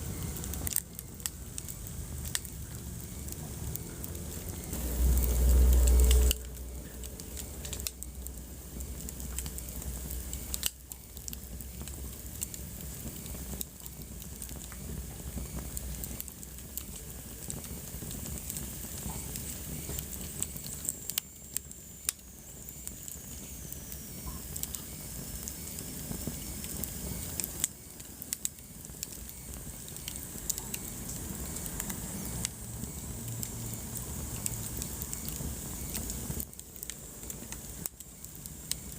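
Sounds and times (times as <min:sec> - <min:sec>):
wood fire crackling and popping: 0:00.0 - 0:38.9
low rumble: 0:01.6 - 0:10.7.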